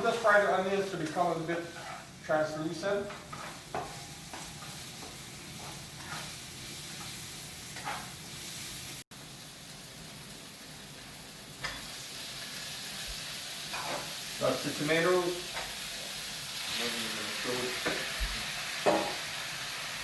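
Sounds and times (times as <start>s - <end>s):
onions sizzling in a pan: 0.0s - 20.0s
spoon scraping a pan: 1.7s - 2.2s, 3.1s - 4.8s, 5.6s - 8.2s, 13.7s - 14.2s.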